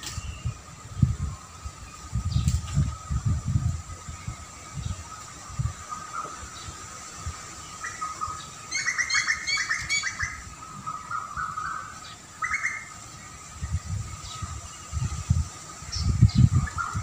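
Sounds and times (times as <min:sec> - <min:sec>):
songbird chirping: 0:00.0 - 0:17.0.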